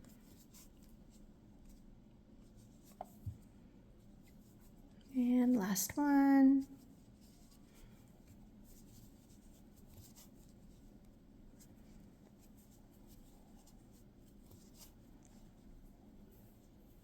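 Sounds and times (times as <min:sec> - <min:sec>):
crochet hook scratching yarn: 0:00.0 - 0:01.8, 0:08.6 - 0:11.0, 0:11.6 - 0:15.7
low room hum: 0:00.0 - 0:17.0.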